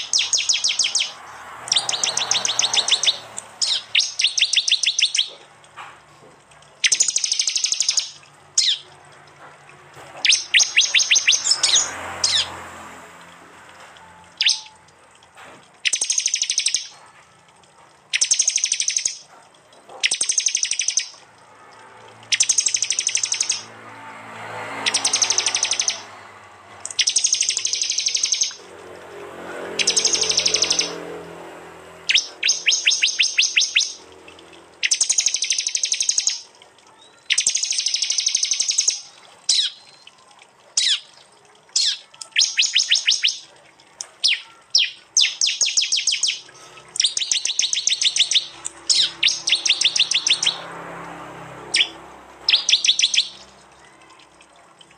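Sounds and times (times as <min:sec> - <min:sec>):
bird harsh rapid chip calls: 0:00.0 - 0:05.4, 0:06.8 - 0:08.9, 0:10.2 - 0:12.6, 0:14.4 - 0:14.8, 0:15.8 - 0:17.0, 0:18.1 - 0:19.3, 0:19.9 - 0:21.2, 0:22.3 - 0:23.7, 0:24.8 - 0:26.1, 0:26.8 - 0:28.6, 0:29.8 - 0:31.0, 0:32.0 - 0:34.0, 0:34.8 - 0:36.5, 0:37.1 - 0:40.0, 0:40.8 - 0:41.1, 0:41.8 - 0:43.5, 0:44.2 - 0:50.6, 0:51.7 - 0:53.5.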